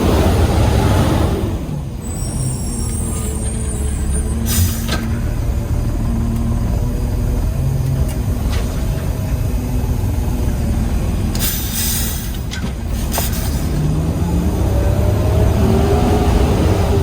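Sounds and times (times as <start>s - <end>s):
air hissing: 11.4s - 13.8s.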